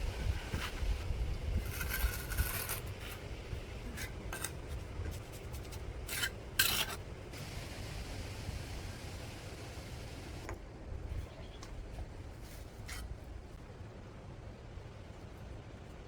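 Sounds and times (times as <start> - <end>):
low steady rumble: 0.0 - 16.0
rasping scraping strokes: 1.6 - 3.3, 3.9 - 7.0.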